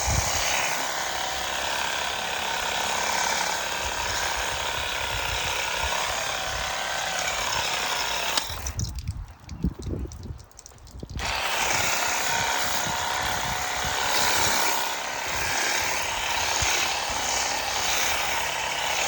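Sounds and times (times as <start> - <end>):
pressure washer hissing: 11.2 - 19.0.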